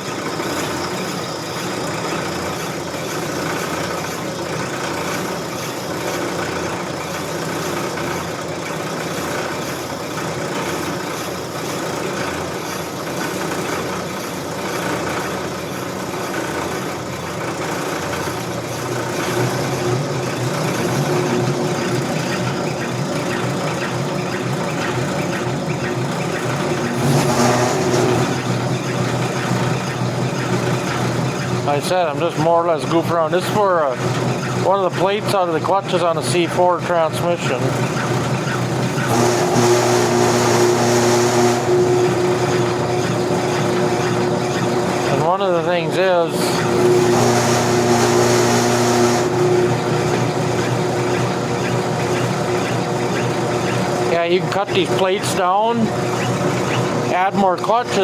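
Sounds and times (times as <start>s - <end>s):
lathe motor humming: 0.0s - 58.0s
cutting bit scraping metal: 18.4s - 58.0s.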